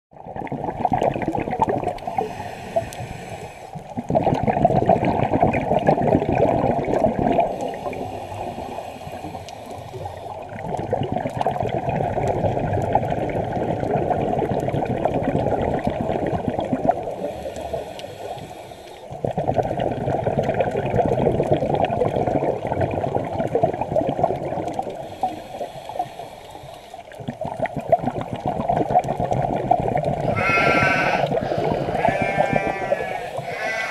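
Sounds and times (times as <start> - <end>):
gurgling exhaled bubbles: 0.2 - 33.9
hissing regulator inhalations: 2.0 - 3.9, 7.5 - 10.4, 17.2 - 19.2, 25.0 - 27.2, 30.2 - 33.9.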